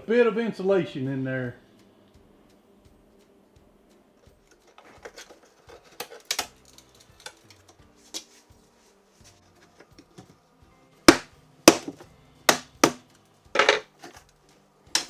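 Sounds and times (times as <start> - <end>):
drywall being broken by hand: 6.0 - 7.5, 11.1 - 14.2.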